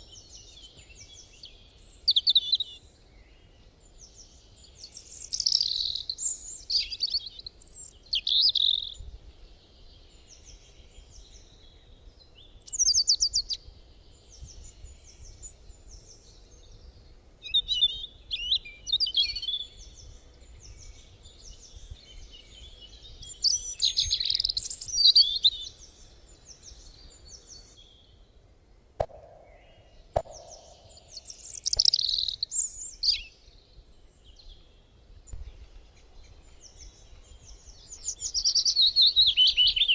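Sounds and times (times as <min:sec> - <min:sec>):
songbirds chirping and singing: 0:00.0 - 0:39.9
sharp clicks: 0:30.2 - 0:32.2.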